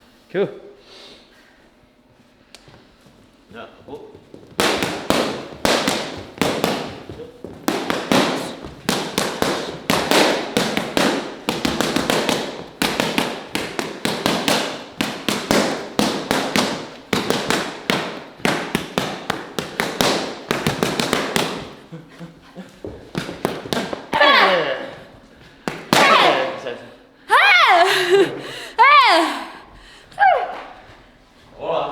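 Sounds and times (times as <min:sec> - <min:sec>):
boxing gloves smacking mitts: 0:03.8 - 0:26.6.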